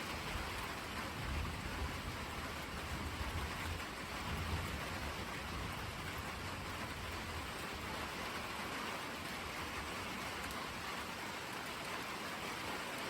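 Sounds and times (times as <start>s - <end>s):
steady rain falling: 0.0s - 13.0s
deep rumble of thunder: 1.1s - 7.6s.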